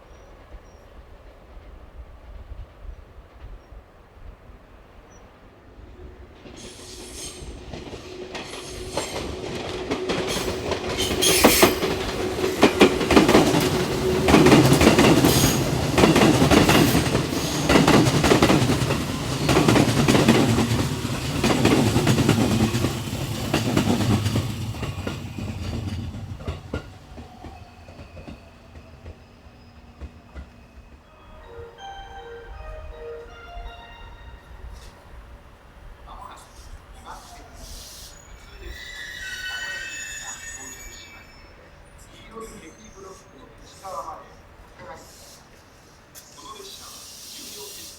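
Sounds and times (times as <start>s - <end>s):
train wheels clacking: 6.4s - 31.0s.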